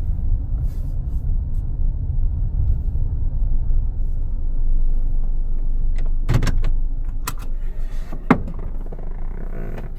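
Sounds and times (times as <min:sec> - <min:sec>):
car interior road rumble: 0:00.0 - 0:09.9
sharp clicks and knocks: 0:08.1 - 0:09.2.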